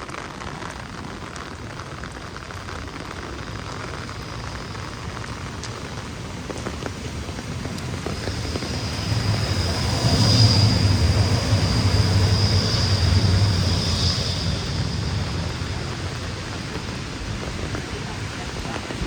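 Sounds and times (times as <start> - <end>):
steady rain: 0.0 - 19.0
tram rumble: 2.3 - 19.0
steel wheels squealing on rails: 4.0 - 18.9.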